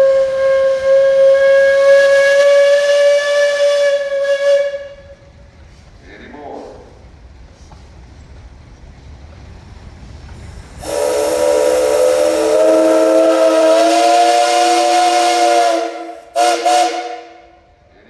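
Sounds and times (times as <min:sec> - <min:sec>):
steam whistle blast: 0:00.0 - 0:05.2, 0:10.8 - 0:17.7.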